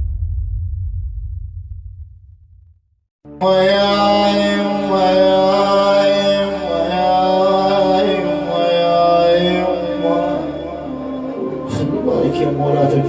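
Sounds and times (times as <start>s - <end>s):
chanted voices holding long notes: 3.4s - 13.0s.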